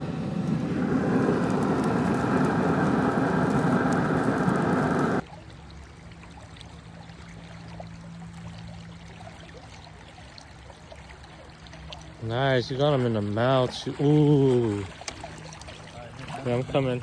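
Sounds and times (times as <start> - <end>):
loud rushing roar: 0.0 - 5.2
river water trickling: 0.0 - 17.0.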